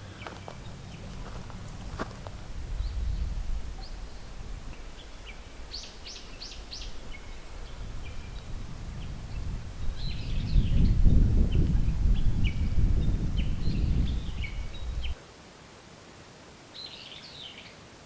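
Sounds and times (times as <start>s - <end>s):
low rumble: 0.0s - 11.2s
small birds chirping: 0.0s - 15.2s.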